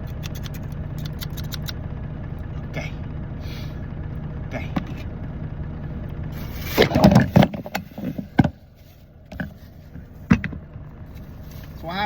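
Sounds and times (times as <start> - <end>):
steady low hum: 0.0 - 12.0
clattering and knocks: 6.7 - 8.7, 9.3 - 10.7.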